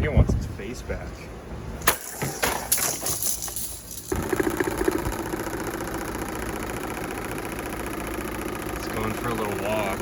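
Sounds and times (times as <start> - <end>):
fast rattle and vibration: 2.0 - 10.0
table fan motor hum: 4.0 - 10.0.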